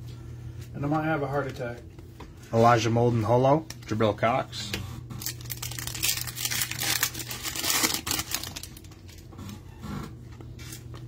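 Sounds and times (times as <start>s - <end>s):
steady low hum: 0.0s - 11.0s
plastic wrappers crinkling: 5.2s - 9.6s.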